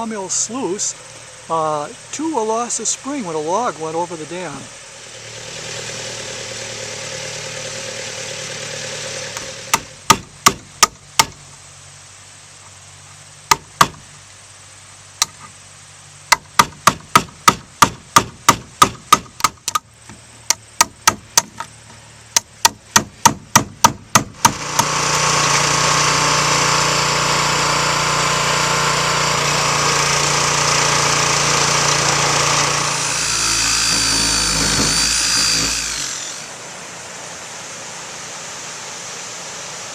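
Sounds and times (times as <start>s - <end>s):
power tool running: 1.0s - 10.2s, 24.2s - 36.8s.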